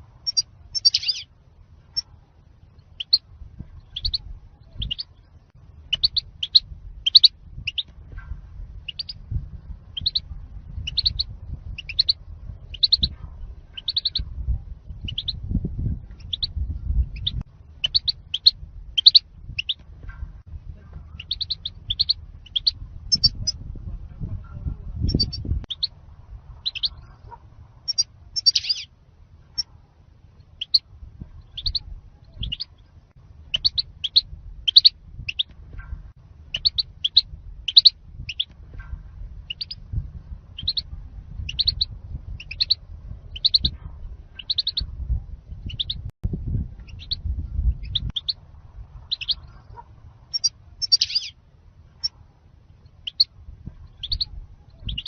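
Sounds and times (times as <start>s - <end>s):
low rumble: 0.0s - 55.0s
bird chirping: 0.2s - 1.3s, 2.7s - 7.9s, 8.8s - 9.3s, 9.9s - 14.3s, 15.0s - 15.4s, 16.1s - 19.8s, 21.1s - 23.6s, 25.0s - 26.0s, 26.6s - 27.2s, 27.8s - 28.9s, 30.4s - 35.5s, 36.5s - 38.5s, 39.4s - 39.9s, 40.6s - 44.9s, 45.6s - 46.1s, 46.8s - 48.4s, 49.0s - 51.4s, 52.9s - 55.0s.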